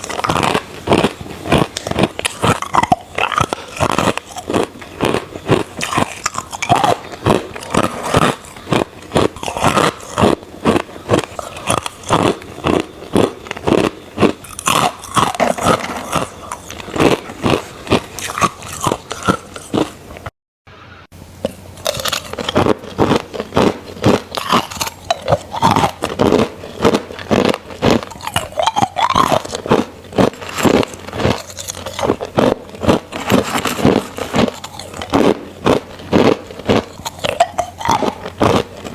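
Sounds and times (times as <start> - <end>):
crushed ice crunching: 0.0 - 19.9, 21.8 - 38.9.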